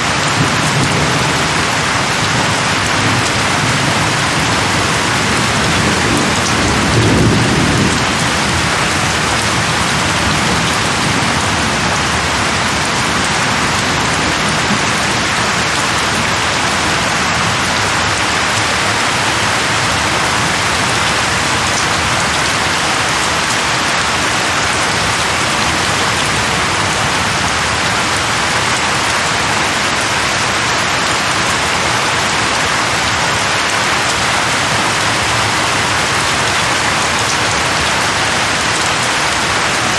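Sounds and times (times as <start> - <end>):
heavy rain: 0.0 - 39.9
thunder rumble: 0.2 - 29.4.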